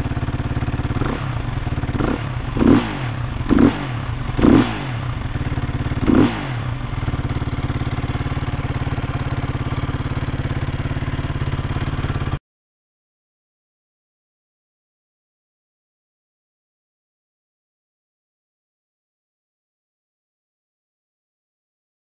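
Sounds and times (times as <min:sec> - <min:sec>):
motorcycle engine idling and revving: 0:00.0 - 0:12.4.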